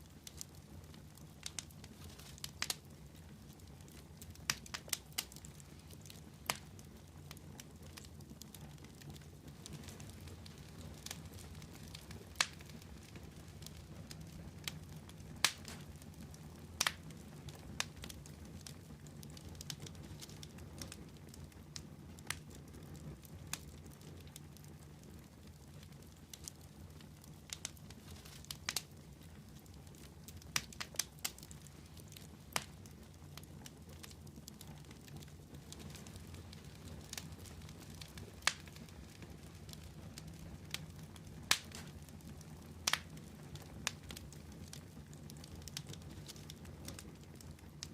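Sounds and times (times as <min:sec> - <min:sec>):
fire crackles and pops: 0:00.0 - 0:47.9
wood fire rumbling: 0:00.0 - 0:47.9.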